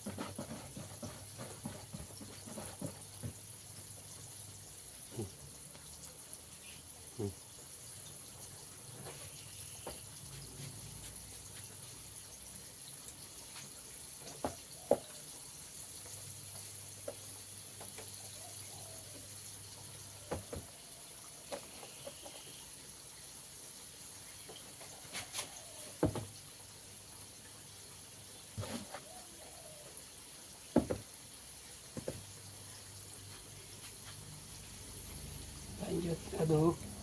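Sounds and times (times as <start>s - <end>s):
chicken deep-frying in oil: 0.0s - 37.0s.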